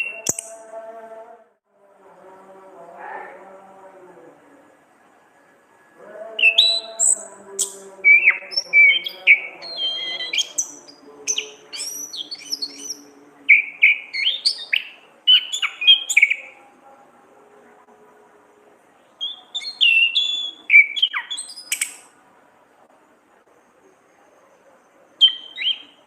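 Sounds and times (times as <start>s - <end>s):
thrush singing: 0.0s - 22.2s, 24.9s - 26.0s.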